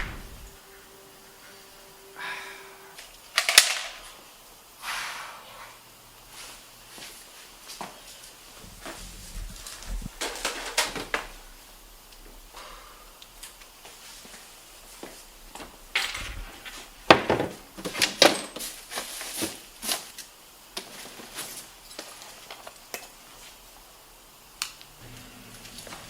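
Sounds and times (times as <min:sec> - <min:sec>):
objects knocking and clattering: 0:15.6 - 0:19.5.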